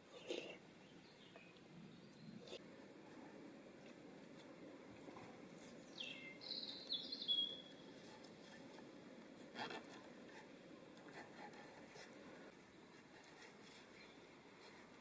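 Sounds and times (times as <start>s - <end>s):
faint steady background noise: 0.0s - 15.0s
bird whistling: 6.0s - 7.8s.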